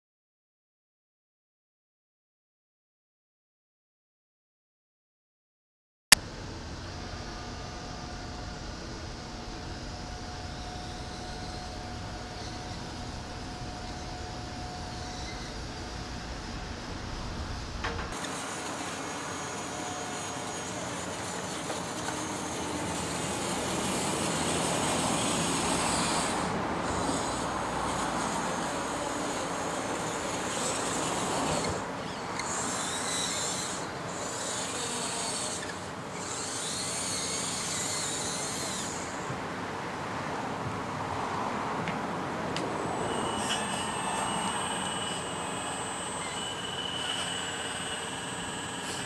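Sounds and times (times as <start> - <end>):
small electric motors whirring: 6.9 - 16.7, 18.1 - 39.7, 42.5 - 49.0
scraping and rubbing: 18.1 - 39.3.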